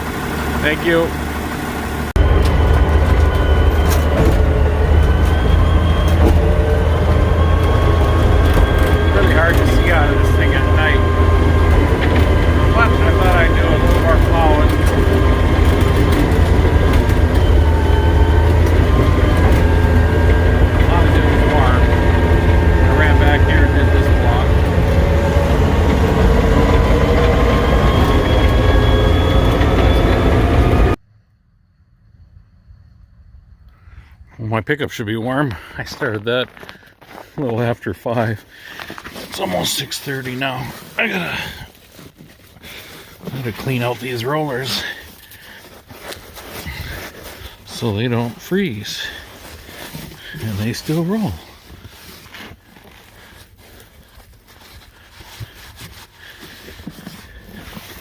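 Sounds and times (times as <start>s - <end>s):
high whine: 0.0s - 34.8s
diesel engine droning: 0.0s - 58.0s.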